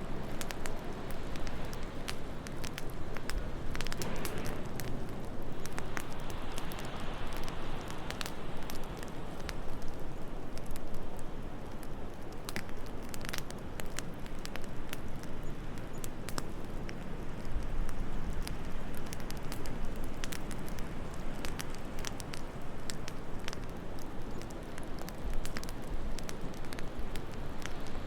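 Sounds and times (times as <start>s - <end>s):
fireplace crackling: 0.0s - 28.0s
wind rushing: 4.0s - 7.6s.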